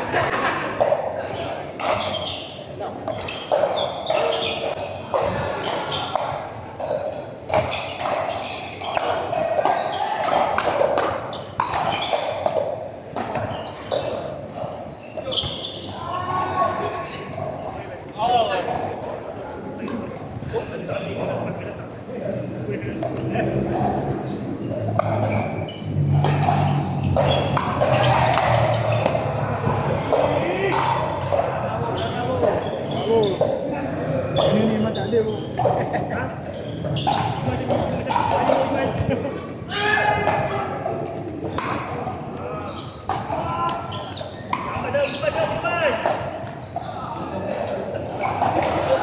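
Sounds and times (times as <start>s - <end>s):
low background murmur: 0.0s - 49.0s
shoes squeaking on court: 1.3s - 10.1s, 11.2s - 12.6s, 13.2s - 16.2s, 20.4s - 21.5s, 23.3s - 29.4s, 31.9s - 37.7s, 42.2s - 43.2s, 43.8s - 49.0s
paddles hitting ball: 3.0s - 15.8s, 23.0s - 33.6s
people talking: 15.2s - 24.2s, 26.1s - 46.2s, 46.8s - 49.0s.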